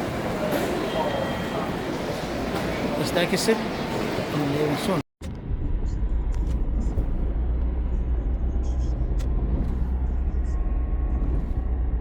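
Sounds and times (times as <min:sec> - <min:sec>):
vehicle rumble in motion: 0:05.2 - 0:12.0.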